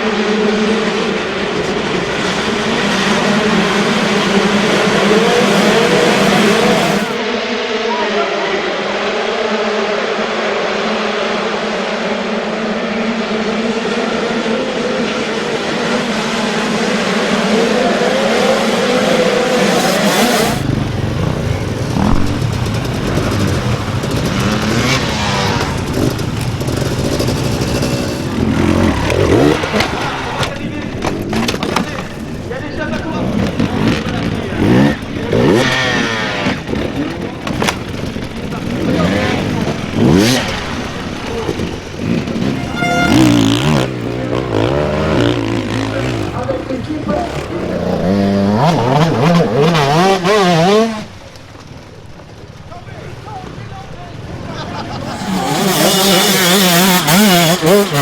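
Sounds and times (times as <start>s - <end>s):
dirt bike engines revving: 0.0s - 7.9s, 8.7s - 58.0s
high whistle-like tone: 42.7s - 43.6s.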